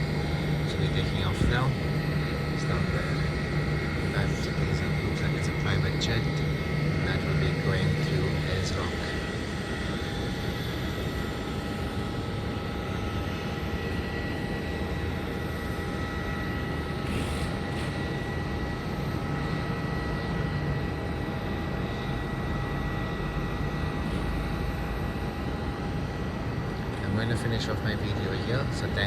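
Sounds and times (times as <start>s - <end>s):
jet engines rumbling: 0.0s - 29.0s
thin jet whine: 0.0s - 29.0s.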